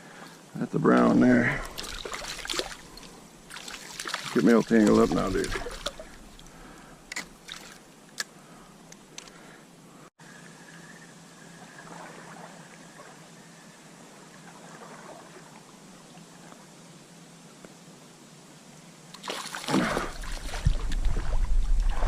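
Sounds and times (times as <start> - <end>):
stream flowing: 0.0 - 8.3, 11.5 - 16.5.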